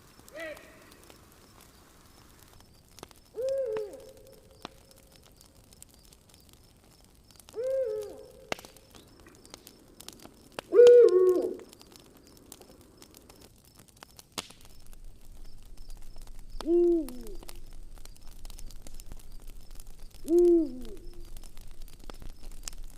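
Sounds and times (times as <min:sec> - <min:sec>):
campfire crackling: 0:00.0 - 0:22.9
owl hooting: 0:03.3 - 0:04.4, 0:07.6 - 0:08.5, 0:10.7 - 0:11.7, 0:16.6 - 0:17.6, 0:20.2 - 0:21.3.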